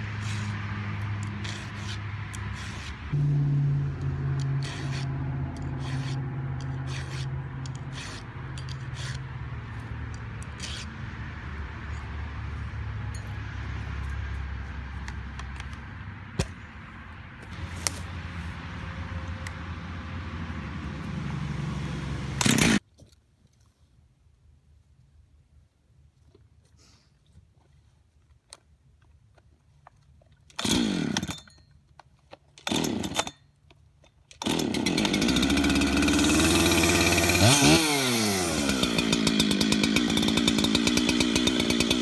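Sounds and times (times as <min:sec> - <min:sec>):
scraping: 0:00.0 - 0:03.3, 0:04.4 - 0:18.6
engine running: 0:00.0 - 0:22.8, 0:34.4 - 0:42.0.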